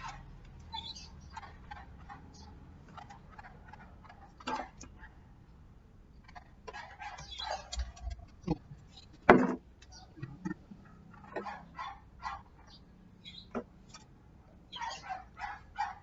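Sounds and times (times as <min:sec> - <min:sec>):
fan parts clicking and knocking: 0:06.6 - 0:11.6.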